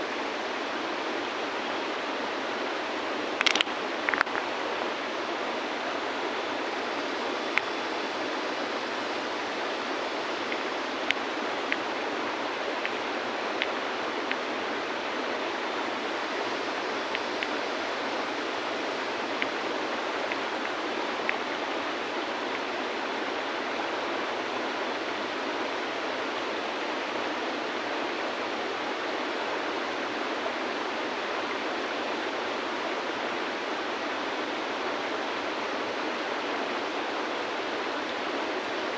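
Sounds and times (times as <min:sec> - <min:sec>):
river flowing over stones: 0:00.0 - 0:38.9
stones clicking: 0:03.4 - 0:04.4.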